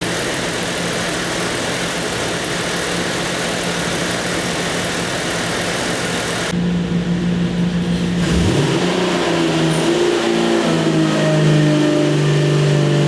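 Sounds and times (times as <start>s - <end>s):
engine idling: 0.0s - 8.5s.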